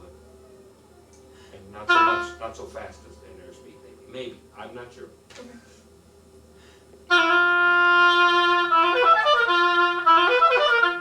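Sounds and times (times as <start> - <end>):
oboe playing: 1.8 - 2.7, 7.1 - 11.0.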